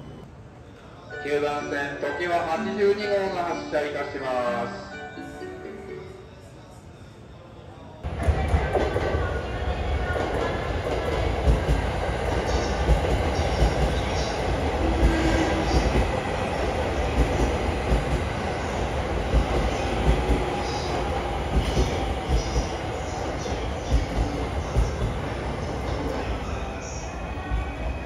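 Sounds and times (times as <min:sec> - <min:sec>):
train cars rumbling: 0:08.0 - 0:28.0.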